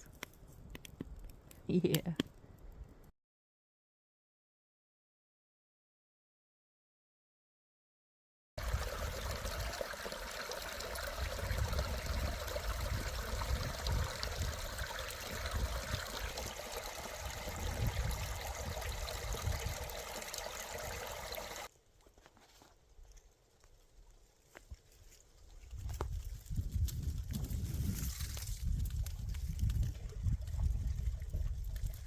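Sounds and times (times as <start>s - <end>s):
stream trickling: 8.6s - 21.7s, 29.3s - 32.0s.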